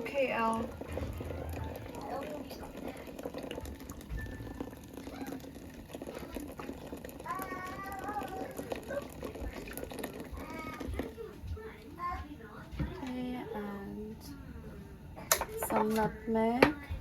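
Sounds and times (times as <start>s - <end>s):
high-pitched child's voice: 7.2s - 9.5s, 10.3s - 12.4s.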